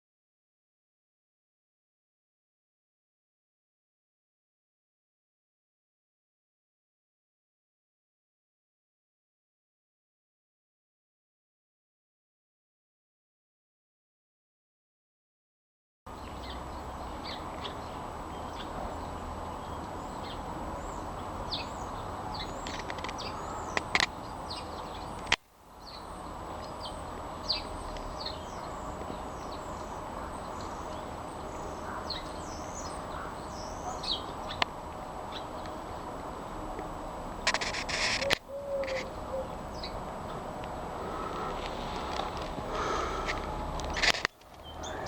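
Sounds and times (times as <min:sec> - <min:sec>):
outdoor background hiss: 0:16.1 - 0:45.0
small birds chirping: 0:16.1 - 0:45.0.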